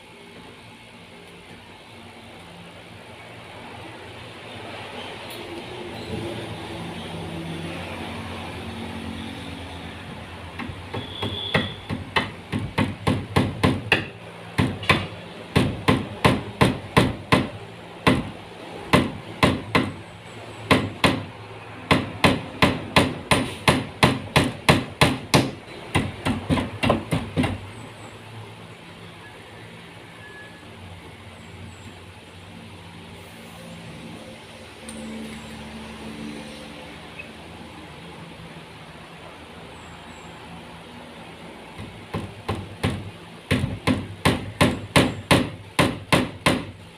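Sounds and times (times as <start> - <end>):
hammer strikes: 10.5 - 20.0, 20.7 - 21.3, 21.9 - 27.6, 41.8 - 46.8.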